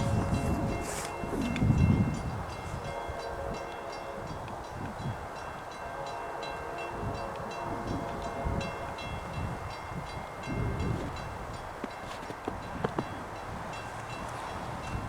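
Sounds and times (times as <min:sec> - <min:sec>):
train rolling rumble: 0:00.0 - 0:15.0.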